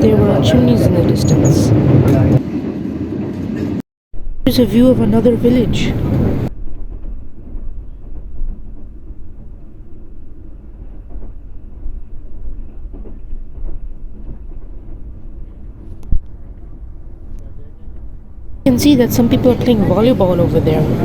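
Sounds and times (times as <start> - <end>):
train rumbling inside coach: 0.0 - 3.8, 4.4 - 21.0.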